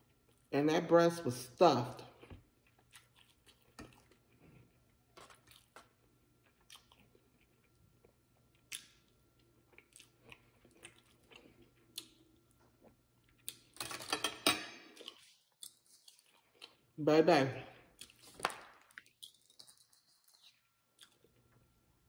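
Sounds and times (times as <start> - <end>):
chewing with mouth clicks: 2.1 - 13.8, 15.0 - 16.9, 17.9 - 21.7.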